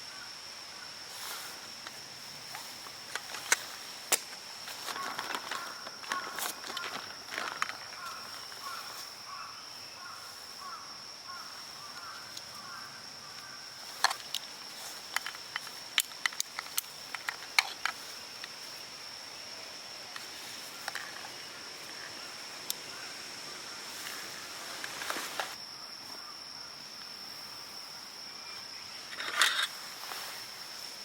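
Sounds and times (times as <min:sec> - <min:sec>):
insect buzzing: 0:00.0 - 0:31.0
sharp clicks and snaps: 0:15.1 - 0:18.6.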